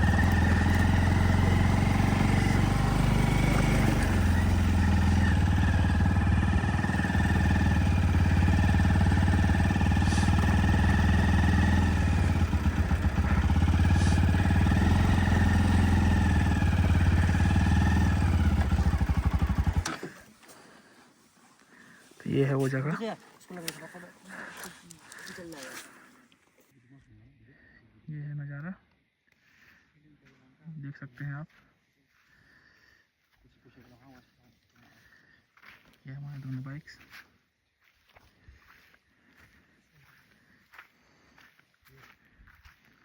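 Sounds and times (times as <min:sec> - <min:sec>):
motorcycle engine running: 0:00.0 - 0:20.2.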